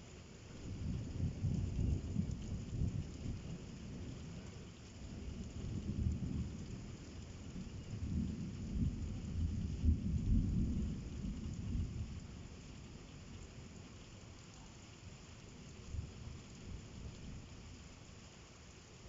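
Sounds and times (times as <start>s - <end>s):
steady rain: 0.0s - 19.0s
thunder rumbling: 0.7s - 12.6s.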